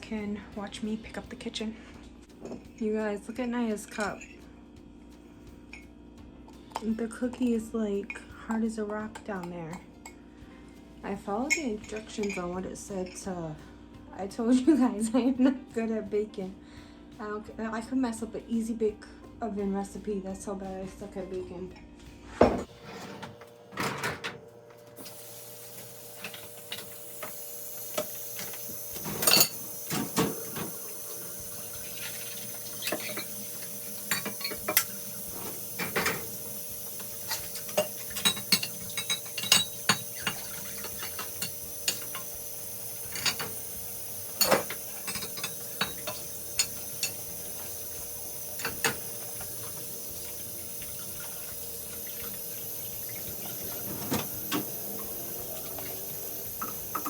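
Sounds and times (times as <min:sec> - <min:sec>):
running tap water: 0:25.0 - 0:57.0
dishes and cutlery clattering: 0:28.0 - 0:30.8, 0:31.9 - 0:36.4, 0:37.0 - 0:42.3, 0:43.1 - 0:43.7, 0:44.3 - 0:47.4, 0:48.6 - 0:49.5, 0:53.2 - 0:57.0.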